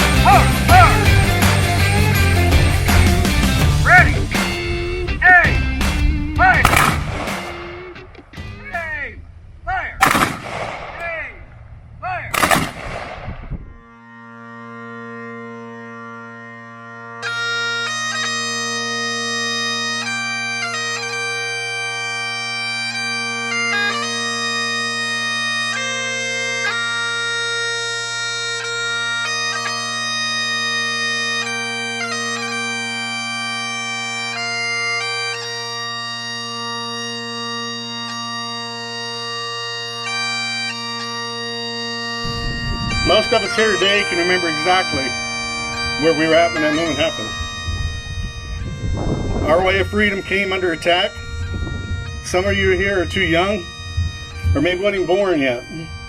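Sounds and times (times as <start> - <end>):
bagpipe drones: 0.0 - 8.6, 13.7 - 56.0
bagpipe chanter melody: 0.0 - 8.7, 13.7 - 56.0
sharp bang: 6.6 - 7.8, 10.0 - 11.1, 42.3 - 43.6.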